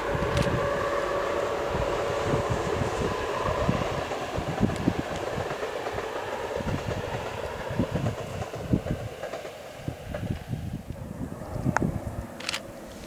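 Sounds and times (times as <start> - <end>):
train wheels rumbling: 0.0 - 13.0
low thumps on rails: 4.4 - 10.4.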